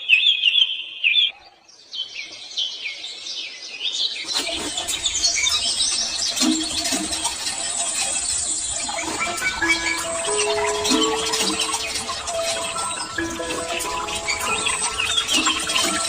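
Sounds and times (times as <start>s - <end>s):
birds chirping: 4.1s - 16.0s
dense background sound: 4.4s - 16.0s.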